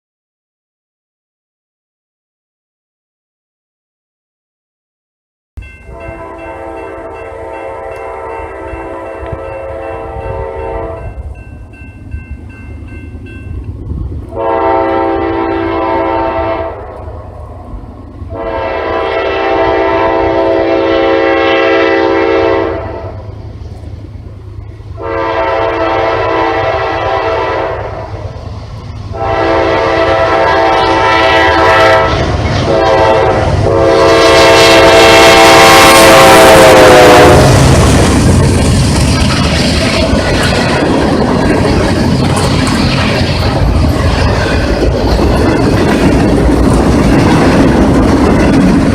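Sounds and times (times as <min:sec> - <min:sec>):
passing train engine and rail noise: 0:05.6 - 0:48.9
locomotive air horn blasts: 0:05.8 - 0:11.3, 0:14.3 - 0:17.1, 0:18.3 - 0:23.3, 0:25.0 - 0:28.2, 0:29.1 - 0:38.0.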